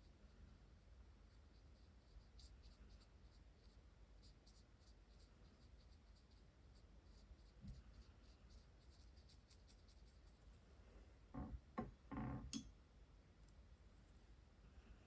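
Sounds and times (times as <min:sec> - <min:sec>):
marker strokes on paper: 0:01.4 - 0:10.6.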